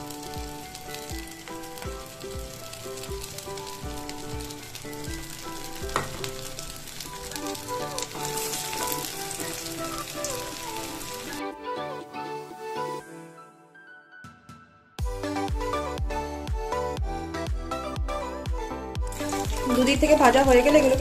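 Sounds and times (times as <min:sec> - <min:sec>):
patties sizzling in oil: 0:00.0 - 0:11.4, 0:19.0 - 0:21.0
background music with beat: 0:07.3 - 0:21.0.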